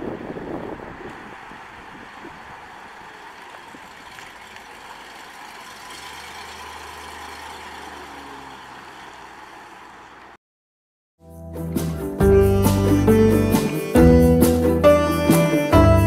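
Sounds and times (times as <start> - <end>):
wind hiss on microphone: 0.0 - 2.8
car engine driving past: 1.2 - 10.4.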